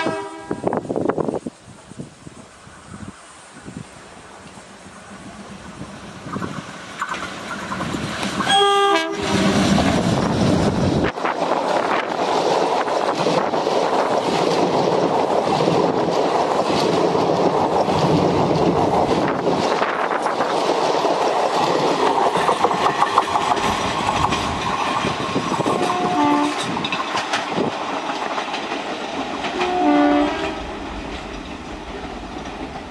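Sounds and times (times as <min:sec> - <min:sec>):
train horn toots: 0:00.0 - 0:00.9, 0:08.4 - 0:09.7, 0:25.7 - 0:26.7, 0:29.6 - 0:30.7
train wheels clattering over joints: 0:04.4 - 0:32.9.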